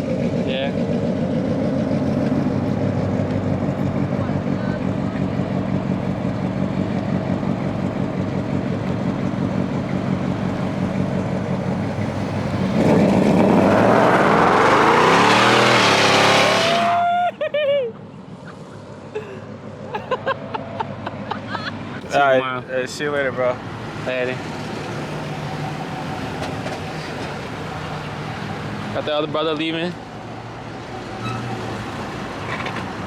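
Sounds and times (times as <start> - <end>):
car engine idling: 0.0 - 15.2
car engine accelerating: 0.0 - 17.0.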